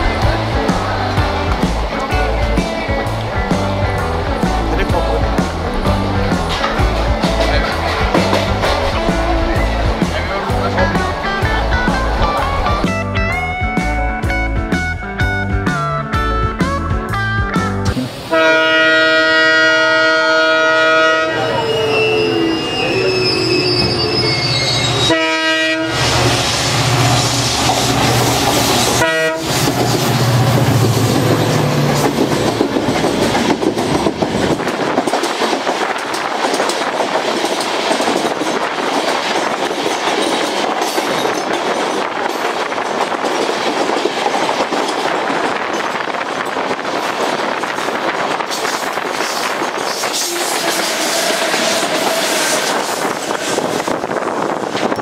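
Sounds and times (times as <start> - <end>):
train coaches rushing past: 0.0 - 14.9, 17.9 - 55.0
locomotive low rumble: 0.0 - 18.2
train horn: 18.3 - 23.6, 25.0 - 27.0, 28.9 - 29.7, 49.9 - 52.9.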